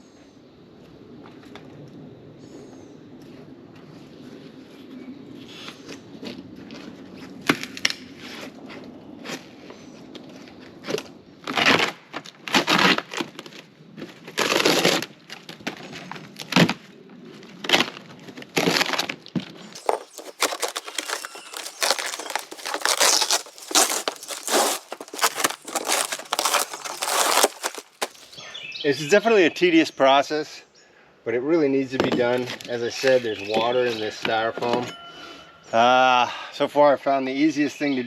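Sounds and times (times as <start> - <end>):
foam crunching and tearing: 19.8 - 28.4
scraper scraping foam insulation: 19.8 - 28.4.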